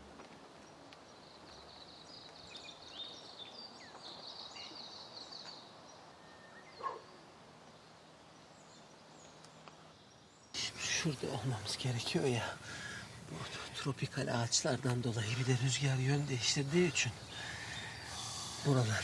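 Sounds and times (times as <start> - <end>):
birds chirping and trilling: 10.0 - 19.0.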